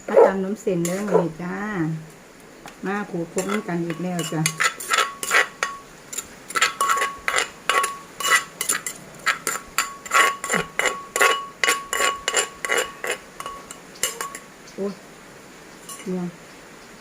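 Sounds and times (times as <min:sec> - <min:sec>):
pestle pounding in a mortar: 0:06.5 - 0:13.6.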